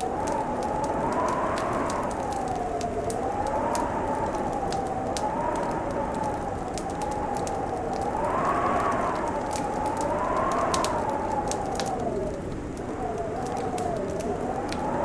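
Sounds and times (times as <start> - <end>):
howling wind: 0.0 - 15.0
steady rushing noise: 0.0 - 15.0
wood fire crackling and popping: 0.0 - 15.0.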